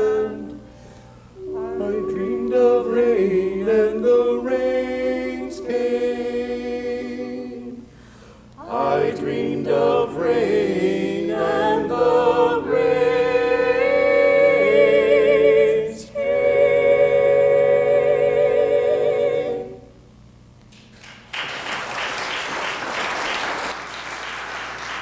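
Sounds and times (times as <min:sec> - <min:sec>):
choir singing sustained chord: 0:00.0 - 0:08.0, 0:08.6 - 0:20.0
audience applause: 0:20.9 - 0:25.0.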